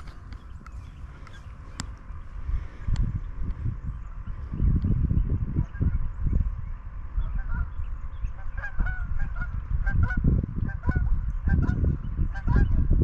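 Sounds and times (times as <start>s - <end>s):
geese honking: 7.2s - 12.9s.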